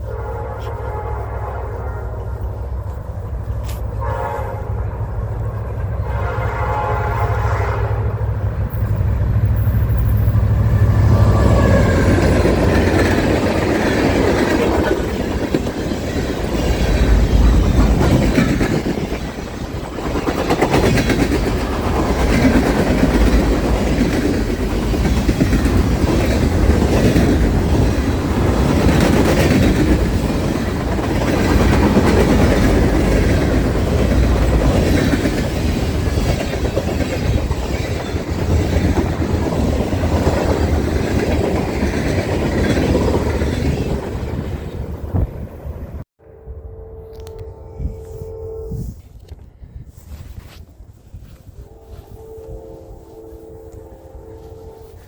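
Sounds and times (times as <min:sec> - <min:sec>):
locomotive horn blasts: 0:00.0 - 0:02.6, 0:03.7 - 0:05.2, 0:06.0 - 0:08.4, 0:46.2 - 0:49.3, 0:51.6 - 0:55.0
train cars clickety-clack: 0:00.0 - 0:46.0.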